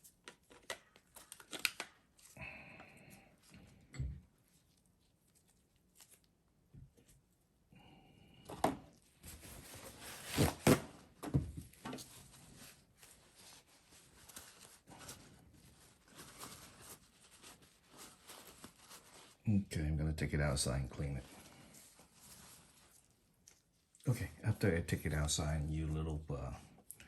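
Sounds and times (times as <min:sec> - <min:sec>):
rustling and scraping on bench: 0:08.8 - 0:19.4, 0:21.0 - 0:23.6.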